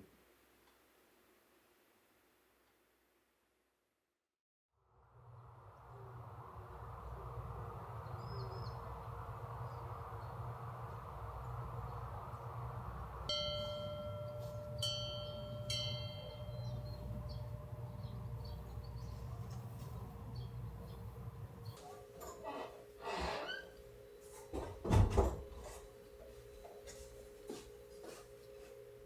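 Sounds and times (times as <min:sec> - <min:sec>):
background hum and hiss: 0:05.0 - 0:29.0
small metal bell struck: 0:13.3 - 0:17.4.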